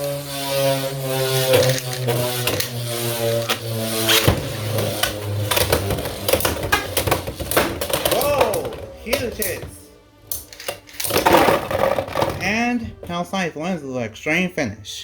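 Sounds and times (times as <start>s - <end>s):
spinning tops whirring: 0.0s - 9.7s
spinning tops clacking together: 10.3s - 12.3s.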